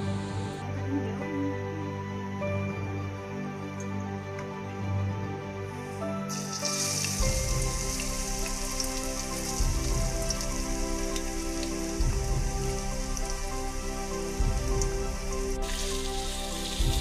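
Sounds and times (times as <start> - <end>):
soft background music: 0.0 - 17.0
oil sizzling in a wok: 6.3 - 17.0.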